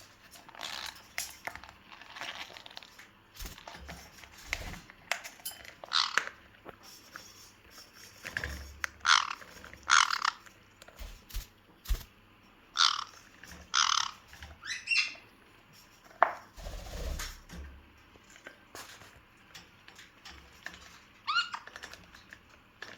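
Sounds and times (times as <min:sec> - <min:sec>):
parrot squawking and chirping: 0:05.8 - 0:06.4, 0:09.0 - 0:10.5, 0:12.7 - 0:15.3, 0:21.2 - 0:21.8.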